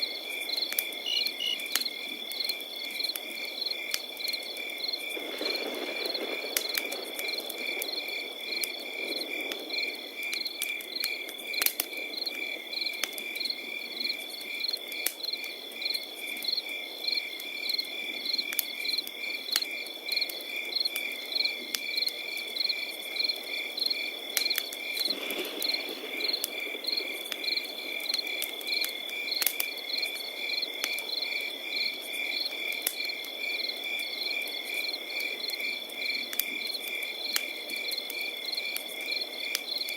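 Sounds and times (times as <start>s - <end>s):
campfire crackling: 0.0s - 39.9s
crickets chirping: 0.0s - 39.9s.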